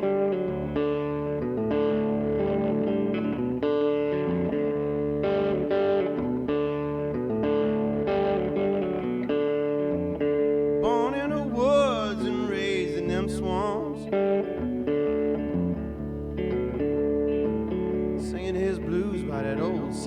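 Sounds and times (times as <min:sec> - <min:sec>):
guitar-led song: 0:00.0 - 0:20.0
person singing: 0:10.8 - 0:14.6, 0:17.8 - 0:20.0.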